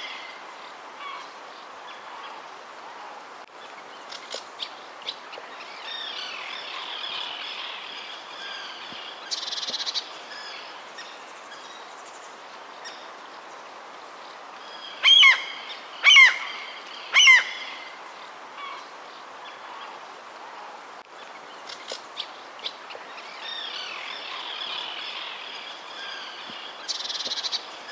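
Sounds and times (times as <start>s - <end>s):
outdoor ambient hiss: 0.0s - 27.9s.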